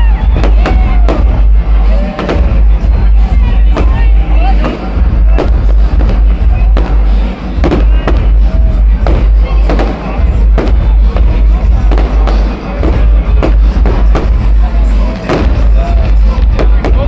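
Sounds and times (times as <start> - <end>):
heavy low rumble: 0.0 - 17.0
firework shells bursting: 0.2 - 17.0.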